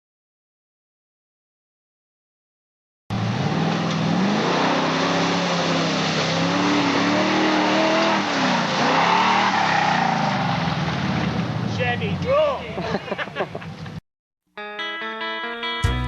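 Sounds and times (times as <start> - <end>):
truck engine revving: 3.1 - 12.1.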